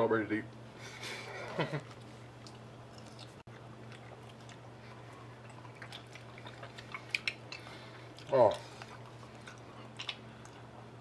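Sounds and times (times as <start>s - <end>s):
wet chewing of strawberries: 1.7s - 11.0s.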